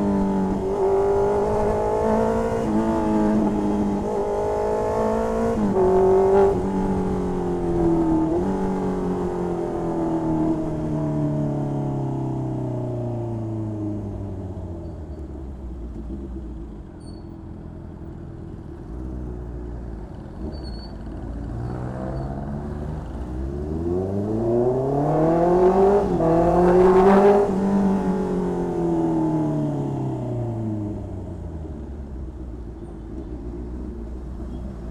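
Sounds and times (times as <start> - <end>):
motorcycle engine revving: 0.0 - 11.7, 20.4 - 31.6.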